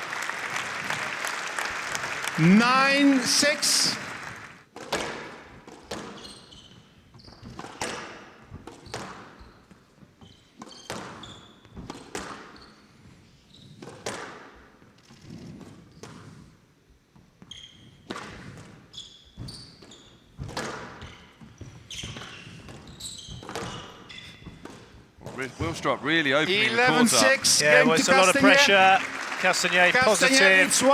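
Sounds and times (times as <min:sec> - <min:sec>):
shoes squeaking on court floor: 0:06.0 - 0:07.9, 0:08.8 - 0:13.9, 0:17.4 - 0:25.7.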